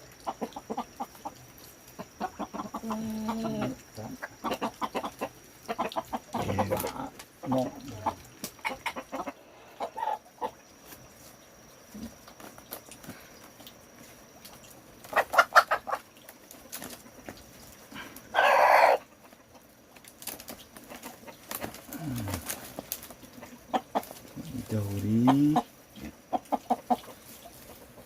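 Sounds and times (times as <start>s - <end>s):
chickens clucking: 0.0s - 28.0s
chicken harsh squawk: 5.7s - 10.5s, 18.3s - 19.1s.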